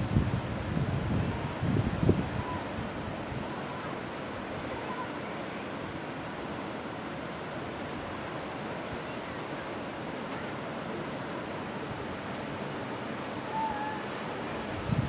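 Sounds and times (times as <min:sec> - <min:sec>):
wind noise on microphone: 0:00.0 - 0:03.5, 0:14.7 - 0:15.0
ocean surf on a beach: 0:00.0 - 0:15.0.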